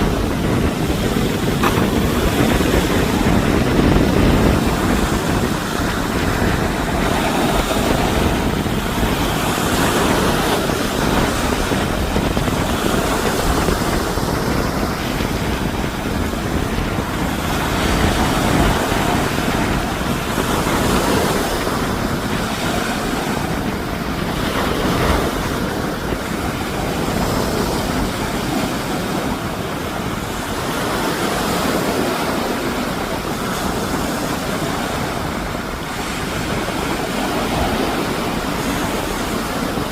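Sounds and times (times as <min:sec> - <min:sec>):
strong wind: 0:00.0 - 0:39.9
surf: 0:00.0 - 0:39.9
wind buffeting microphone: 0:00.0 - 0:39.9.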